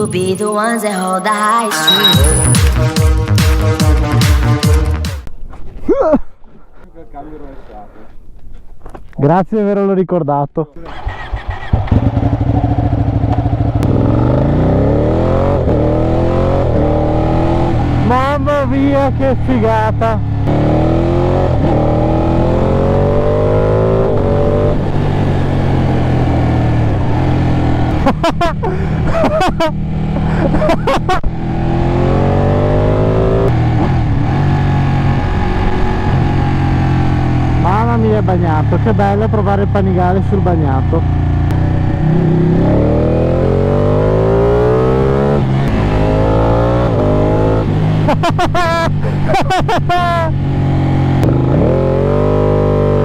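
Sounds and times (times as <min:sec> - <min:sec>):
motorcycle engine accelerating: 0:02.0 - 0:05.3, 0:10.8 - 0:53.0
wind and road noise: 0:05.2 - 0:09.8, 0:10.8 - 0:53.0.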